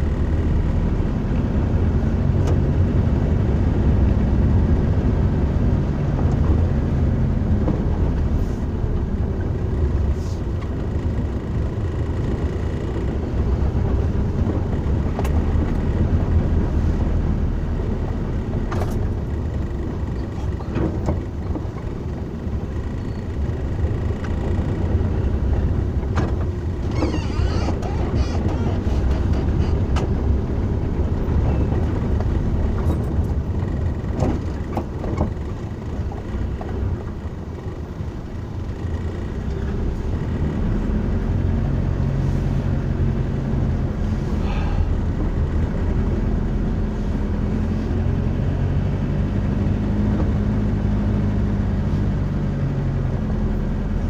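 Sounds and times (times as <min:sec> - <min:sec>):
car cabin rumble: 0:00.0 - 0:54.0.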